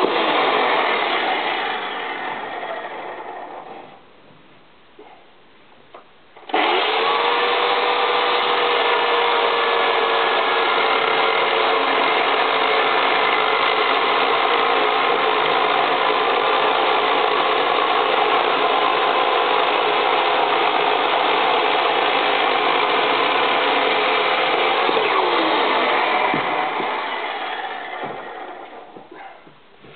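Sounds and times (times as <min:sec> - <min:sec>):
chainsaw running: 0:00.0 - 0:02.8, 0:06.4 - 0:28.9.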